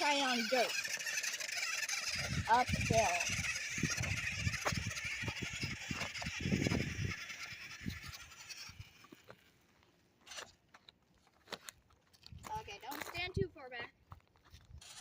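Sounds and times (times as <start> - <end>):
toy motor whining: 0.0 - 9.6, 10.2 - 10.6, 14.6 - 15.0
tires crackling on dirt: 0.0 - 11.7.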